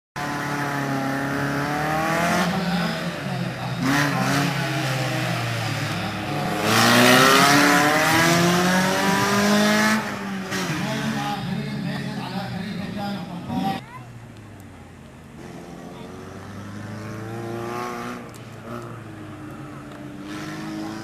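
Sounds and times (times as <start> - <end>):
rally car engine revving: 0.2 - 12.1, 15.4 - 21.0.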